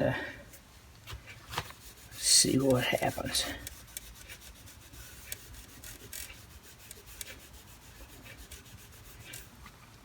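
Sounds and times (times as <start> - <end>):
cloth scrubbing metal surface: 1.7 - 9.6.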